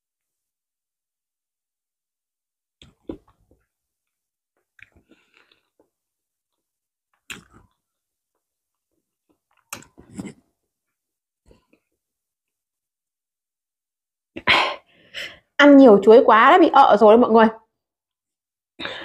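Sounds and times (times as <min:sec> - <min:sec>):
woman chewing and swallowing: 0:04.6 - 0:06.0, 0:07.1 - 0:08.0, 0:09.2 - 0:10.5.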